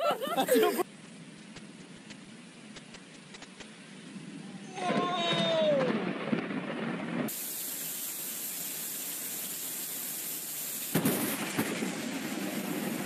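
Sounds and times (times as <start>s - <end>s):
heavy rain pouring: 3.7s - 13.0s
storm sound with falling tone: 3.9s - 7.4s.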